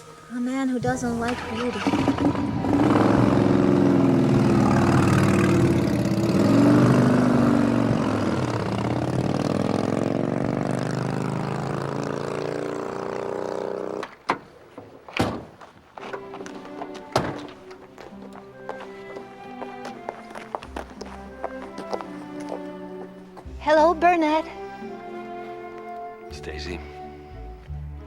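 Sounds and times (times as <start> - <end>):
vehicle engine revving away: 0.9 - 14.1.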